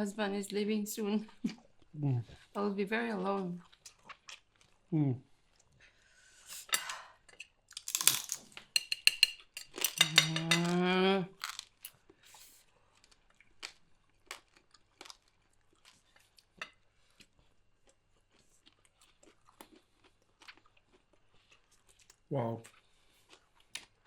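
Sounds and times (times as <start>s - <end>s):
person humming: 2.0s - 2.2s
cutlery scraping a plate: 8.0s - 10.8s.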